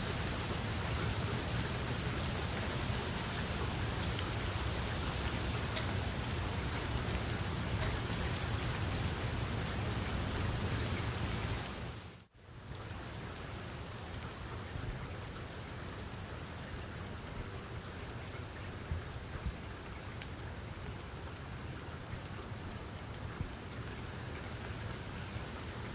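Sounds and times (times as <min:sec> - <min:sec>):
raindrops ticking: 0:00.0 - 0:12.0
steady rain falling: 0:00.0 - 0:25.9.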